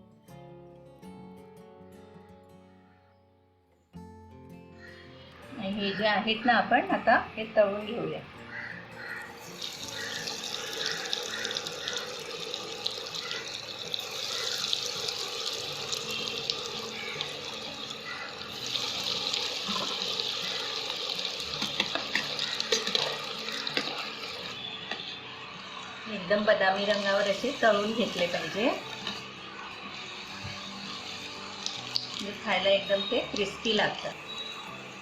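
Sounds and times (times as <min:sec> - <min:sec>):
food deep-frying in hot oil: 0:09.4 - 0:35.0.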